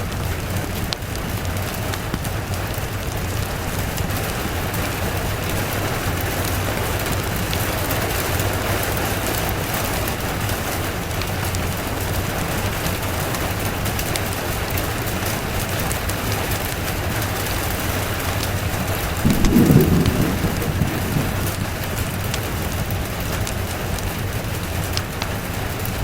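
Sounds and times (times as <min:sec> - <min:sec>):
rain falling: 0:00.0 - 0:26.0
low rumble: 0:19.2 - 0:23.5.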